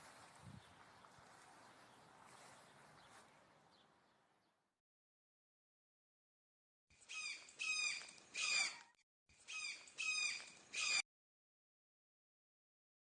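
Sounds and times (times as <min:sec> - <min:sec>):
bird calling: 0:07.0 - 0:11.0.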